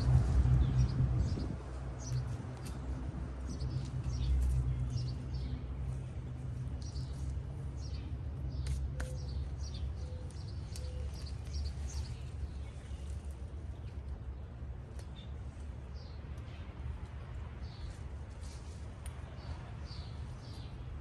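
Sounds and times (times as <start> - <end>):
small birds chirping: 0.6 - 21.0.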